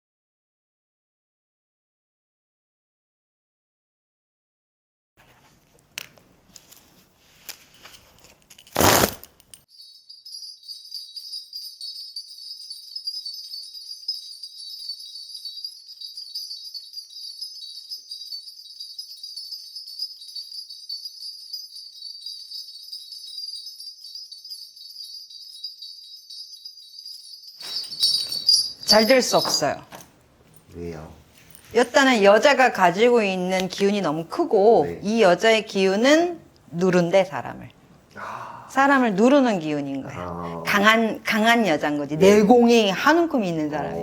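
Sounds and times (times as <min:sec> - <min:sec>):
bell rattle jingling: 0:07.8 - 0:36.4, 0:40.7 - 0:44.0.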